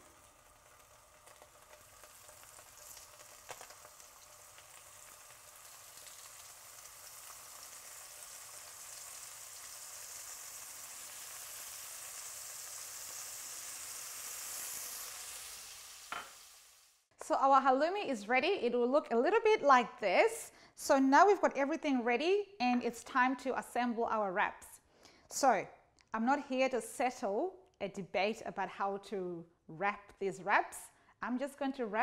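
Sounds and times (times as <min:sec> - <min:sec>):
cheese sizzling in frying pan: 0:00.0 - 0:17.1.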